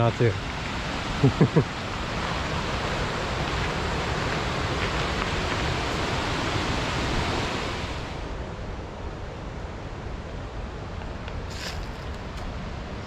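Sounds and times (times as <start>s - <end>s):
river rapids rushing: 0.0s - 8.4s.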